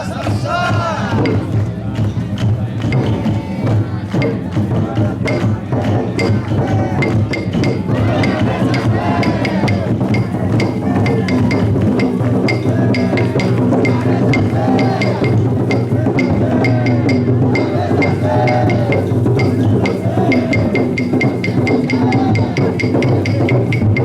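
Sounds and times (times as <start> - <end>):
taiko drum beaten steadily: 0.0 - 24.0
voices chanting: 0.0 - 24.0.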